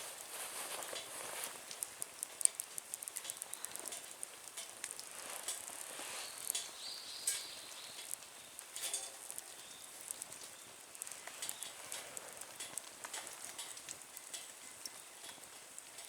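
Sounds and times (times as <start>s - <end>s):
wood fire crackling: 0.0s - 16.0s
faint hiss: 2.8s - 12.7s.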